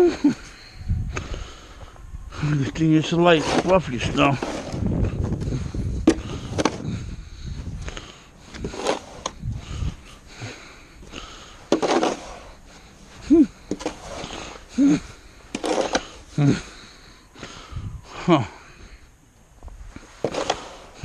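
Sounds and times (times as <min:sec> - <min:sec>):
snow shovel scraping snow: 0:02.5 - 0:04.9, 0:08.5 - 0:09.8, 0:11.2 - 0:16.8, 0:20.0 - 0:21.0
person grunting: 0:13.2 - 0:13.6, 0:14.7 - 0:15.2, 0:16.3 - 0:16.8.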